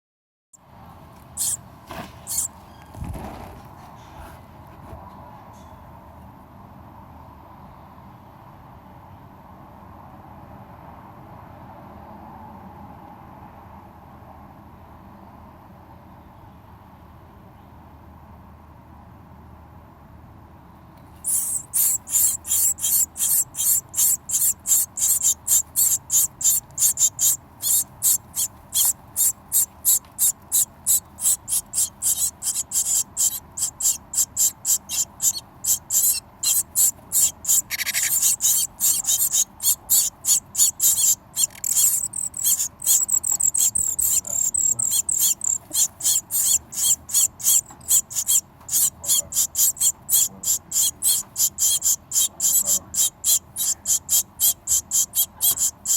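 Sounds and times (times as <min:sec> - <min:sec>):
birds calling high-pitched: 0:02.2 - 0:02.5, 0:21.2 - 0:55.9.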